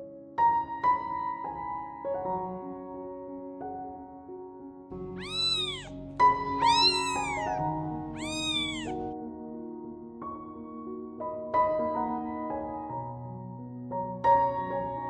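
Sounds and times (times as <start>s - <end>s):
soft piano music: 0.0s - 15.0s
kitten mewing: 5.2s - 6.0s, 6.6s - 9.0s.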